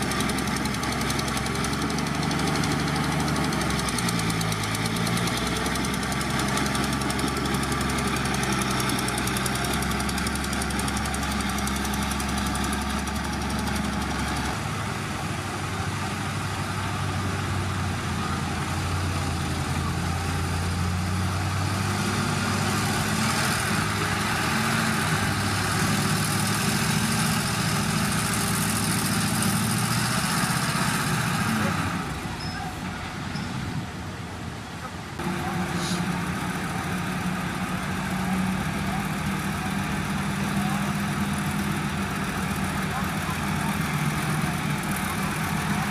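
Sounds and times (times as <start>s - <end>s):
heavy machinery diesel engine: 0.0s - 45.9s.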